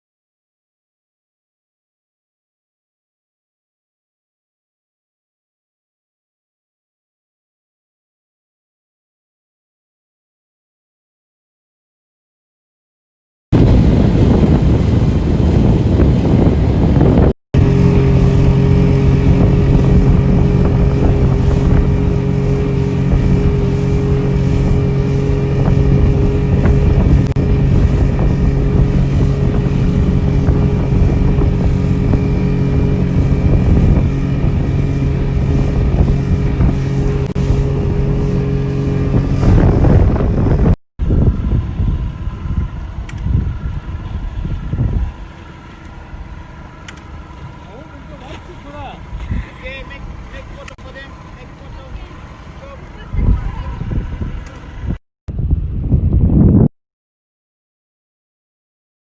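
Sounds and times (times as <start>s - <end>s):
wind buffeting microphone: 13.6s - 48.2s, 48.8s - 56.7s
speedboat engine running: 13.6s - 56.4s
rushing wind and water: 13.6s - 56.7s.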